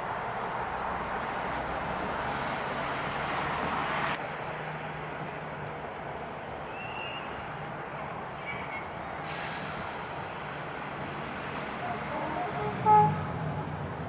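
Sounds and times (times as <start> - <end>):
train wheels rushing on rails: 8.4 - 14.0.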